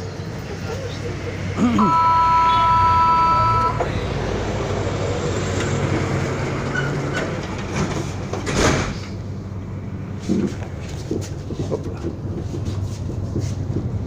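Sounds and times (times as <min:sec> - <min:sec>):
tram running rumble: 0:00.0 - 0:14.0
two-note electronic warning tone: 0:01.8 - 0:03.9.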